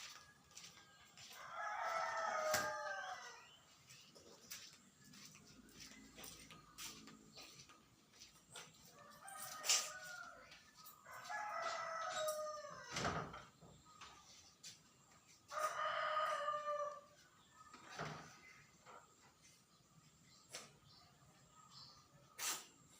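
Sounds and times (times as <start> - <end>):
rooster crowing: 1.2 - 3.5, 9.0 - 13.0, 15.5 - 17.2.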